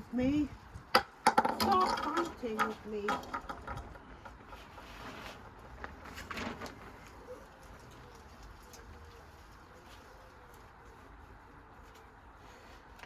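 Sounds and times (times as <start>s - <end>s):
faint knocks and clatters: 0.7s - 10.0s.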